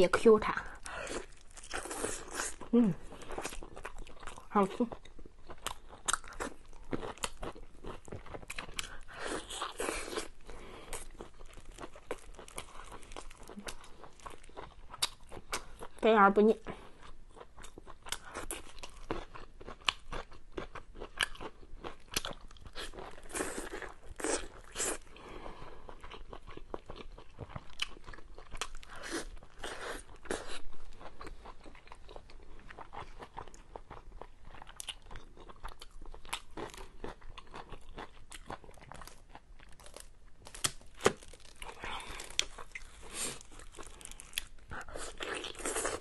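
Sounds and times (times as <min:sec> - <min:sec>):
person chewing: 0:00.7 - 0:16.0, 0:16.8 - 0:46.0.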